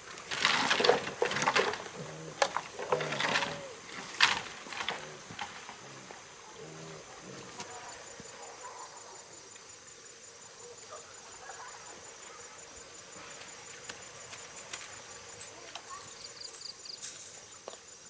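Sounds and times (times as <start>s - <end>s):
pig grunting: 0.7s - 7.7s.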